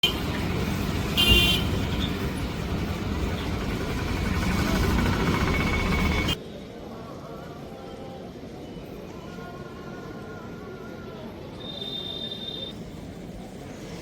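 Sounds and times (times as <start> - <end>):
busy street noise: 0.0 - 14.0
vehicle horn toot: 1.2 - 1.8, 11.6 - 12.8.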